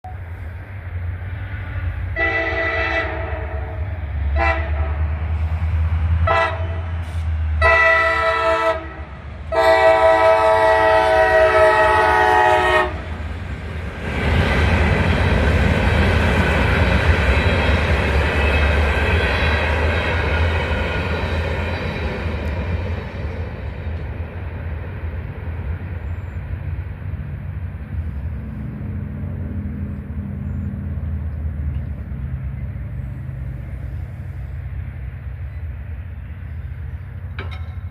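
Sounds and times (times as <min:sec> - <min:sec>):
train passing rolling rumble: 0:00.0 - 0:37.9
locomotive horn blasts: 0:02.1 - 0:05.1, 0:06.2 - 0:13.1
diesel engine rumble: 0:12.8 - 0:37.9.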